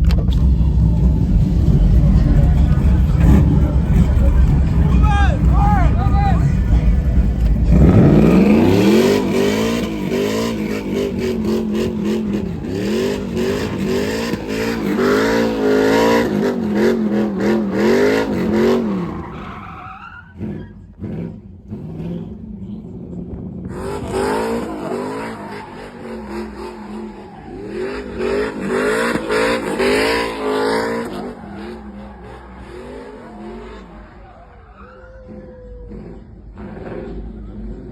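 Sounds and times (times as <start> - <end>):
engine revving hard: 0.8 - 19.4, 23.6 - 34.2
tyres squealing: 7.8 - 20.9, 23.7 - 36.3.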